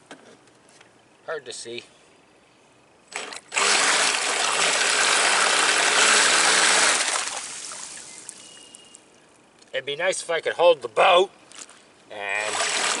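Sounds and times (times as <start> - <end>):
boat motor churning water: 3.2 - 8.1, 12.3 - 13.0.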